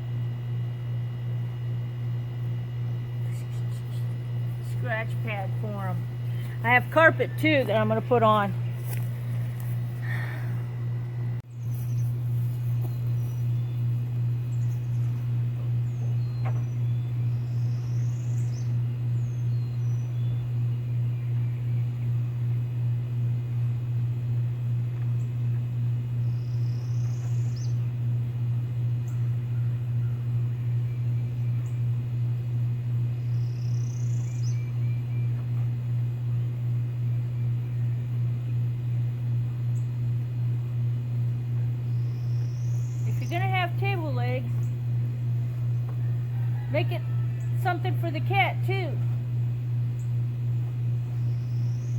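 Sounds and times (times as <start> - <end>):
low pulsing machine hum: 0.0 - 51.9.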